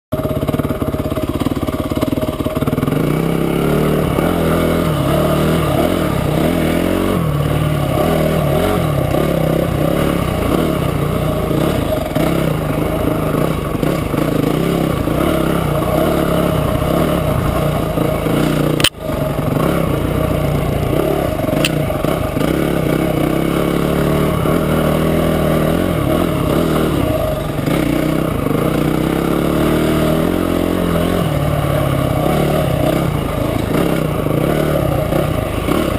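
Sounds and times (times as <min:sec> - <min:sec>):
motorcycle engine running: 0:00.1 - 0:35.9
sharp click: 0:18.8 - 0:19.0, 0:21.6 - 0:21.8.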